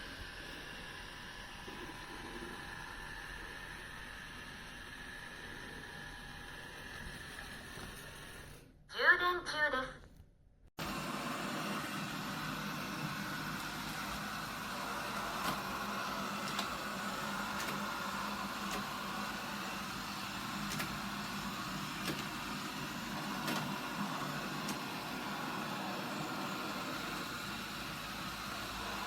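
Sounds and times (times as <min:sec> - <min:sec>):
robot vacuum whirring: 0:10.8 - 0:29.0.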